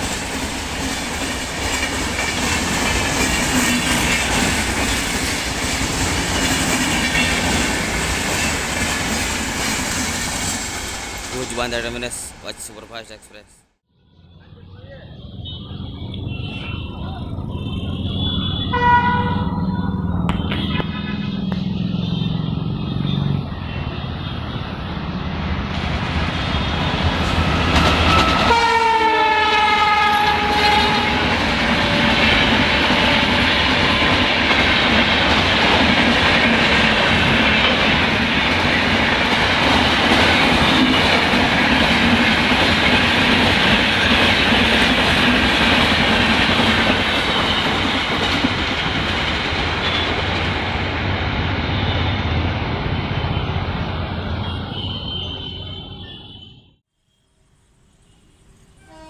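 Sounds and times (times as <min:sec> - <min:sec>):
train wheels clattering: 0:00.0 - 0:11.6
locomotive horn: 0:13.9 - 0:24.6, 0:27.7 - 0:34.1, 0:54.2 - 0:56.7, 0:58.8 - 0:59.0.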